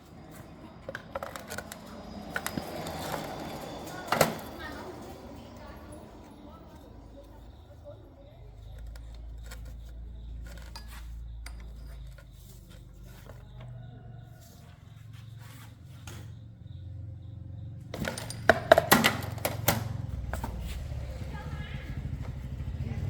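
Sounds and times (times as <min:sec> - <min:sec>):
small metal tools clinking: 0:00.3 - 0:13.4, 0:17.9 - 0:19.7.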